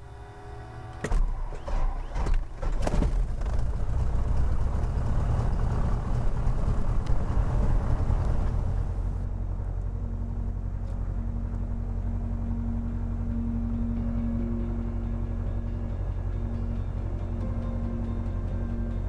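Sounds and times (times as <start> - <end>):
engine and propeller drone: 0.0 - 19.0
airflow noise: 6.0 - 9.2.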